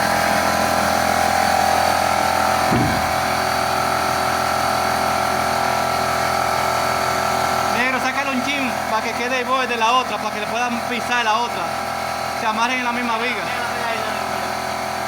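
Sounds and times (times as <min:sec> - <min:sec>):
machine whining: 0:02.2 - 0:04.6
steady noise: 0:02.7 - 0:03.4.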